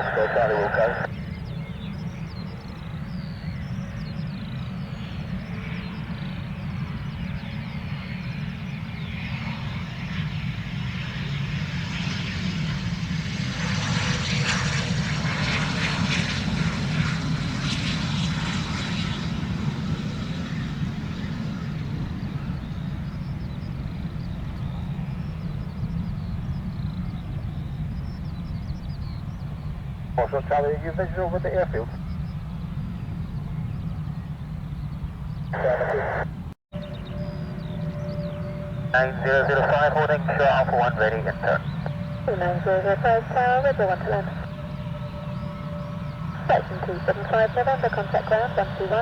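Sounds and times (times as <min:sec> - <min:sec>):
aircraft engines running: 0:00.0 - 0:49.0.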